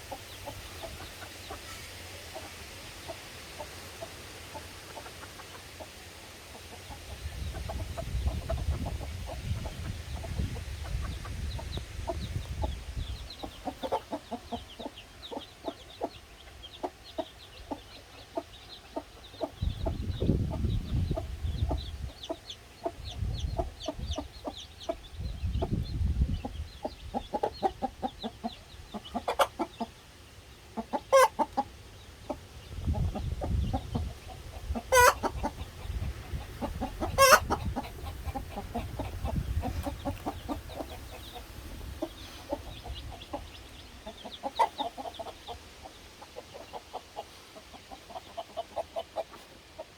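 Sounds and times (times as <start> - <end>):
chicks peeping: 0.0 - 49.9
hen clucking: 0.0 - 49.9
loud sharp calls: 34.2 - 45.6.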